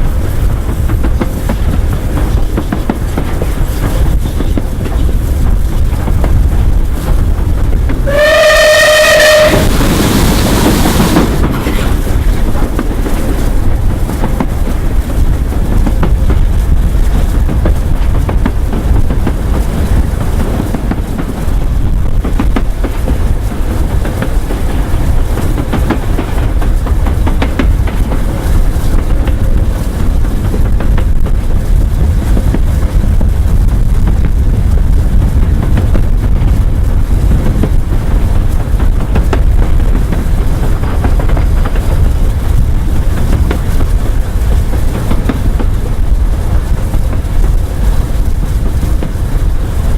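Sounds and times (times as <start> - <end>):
steam train rumbling past: 0.0 - 49.9
train whistle: 8.0 - 10.0.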